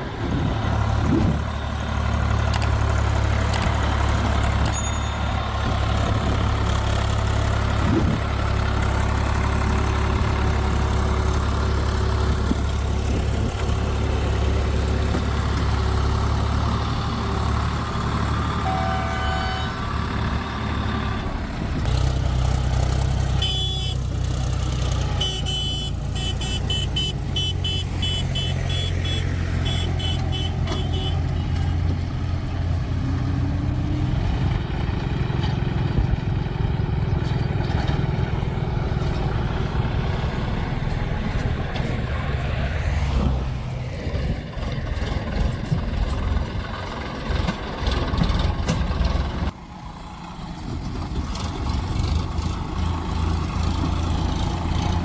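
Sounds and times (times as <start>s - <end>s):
heavy diesel engines running: 0.0s - 55.0s.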